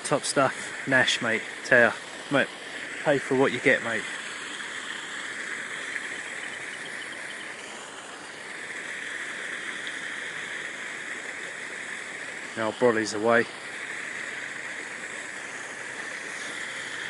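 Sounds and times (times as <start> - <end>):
steady rushing noise: 0.0 - 9.6.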